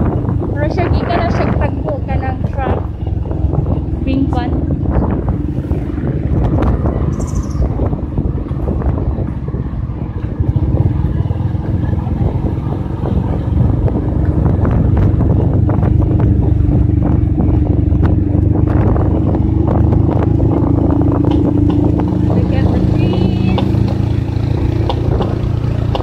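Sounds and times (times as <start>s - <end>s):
motorcycle engine running: 0.0s - 26.0s
wind rushing over microphone: 0.0s - 26.0s.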